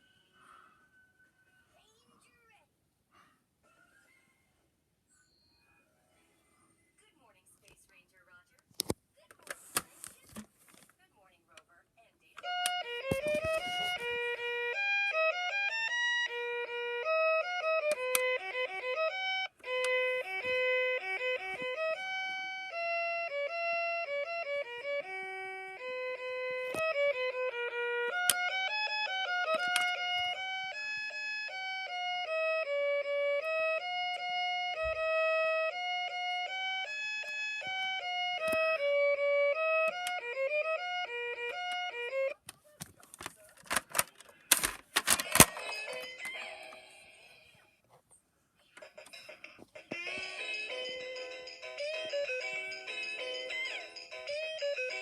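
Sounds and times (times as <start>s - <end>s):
electronic toy tune: 12.4s - 42.4s, 49.9s - 55.0s.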